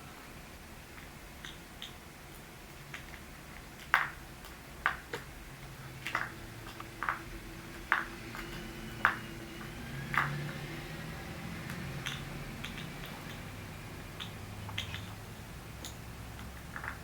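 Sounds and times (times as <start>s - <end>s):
toy tapping on hard floor: 3.8s - 5.3s, 6.0s - 10.7s, 11.6s - 13.5s, 14.1s - 15.2s, 15.8s - 17.0s.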